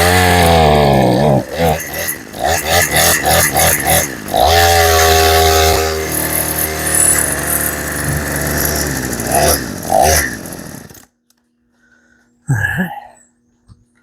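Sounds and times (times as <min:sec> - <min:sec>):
chainsaw revving and bogging down: 0:00.0 - 0:11.1.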